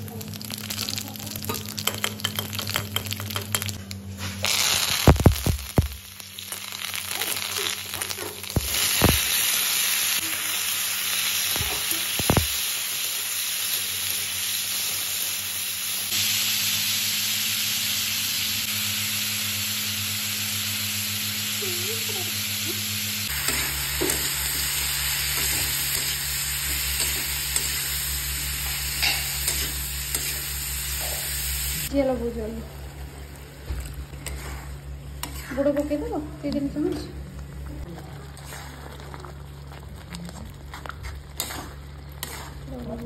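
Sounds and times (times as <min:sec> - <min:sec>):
hot oil sizzling: 0:00.0 - 0:36.4, 0:40.6 - 0:43.0
metal spatula scraping pan: 0:41.4 - 0:42.6.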